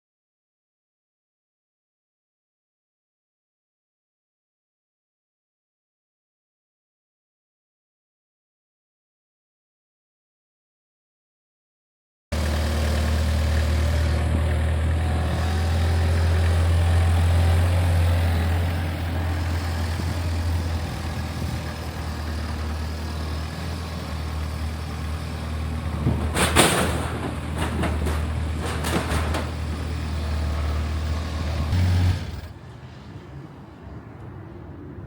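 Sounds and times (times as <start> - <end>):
heavy engine humming: 12.3 - 35.0.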